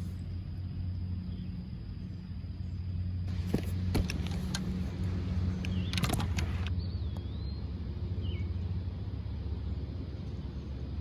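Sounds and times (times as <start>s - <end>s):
motor humming: 3.3s - 6.7s.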